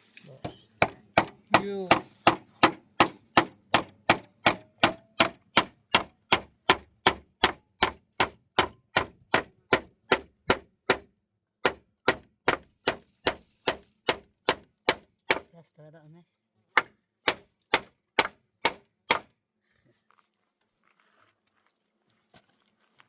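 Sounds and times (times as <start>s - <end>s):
hammering on timber: 0.8s - 15.5s, 16.7s - 19.3s.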